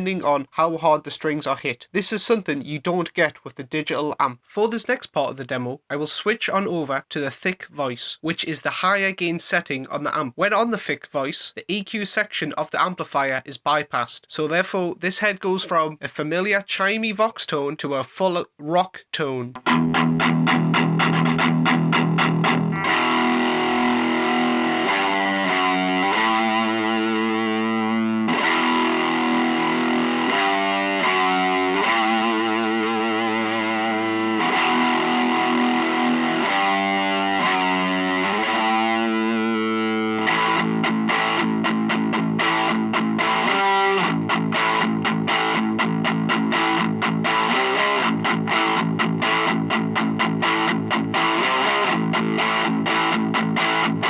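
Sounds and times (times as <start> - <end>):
distorted electric guitar chords: 19.6 - 54.0
fast picked guitar riff: 19.6 - 54.0.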